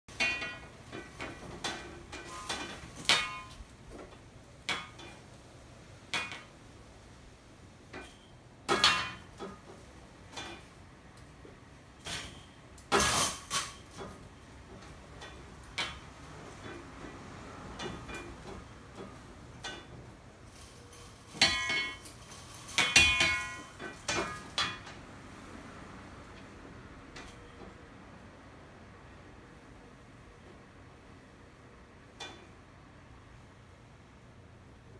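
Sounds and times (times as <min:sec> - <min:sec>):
window blind slats clacking: 0:00.1 - 0:05.3, 0:12.0 - 0:25.0.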